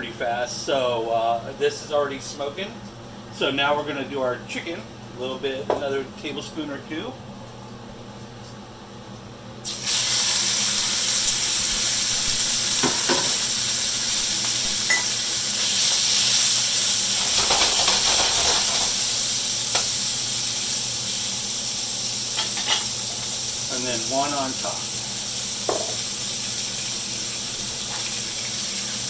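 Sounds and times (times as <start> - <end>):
chicken sizzling in hot oil: 9.6 - 29.0.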